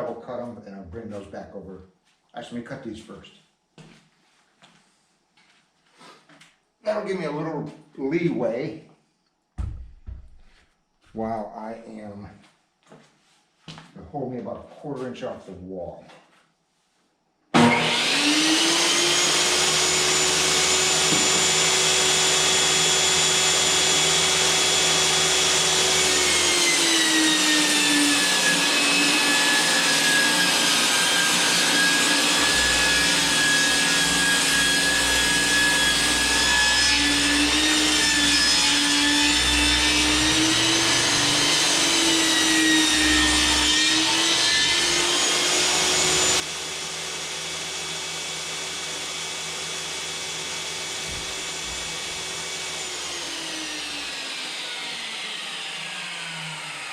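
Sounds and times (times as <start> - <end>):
table saw ripping boards: 17.6 - 56.9.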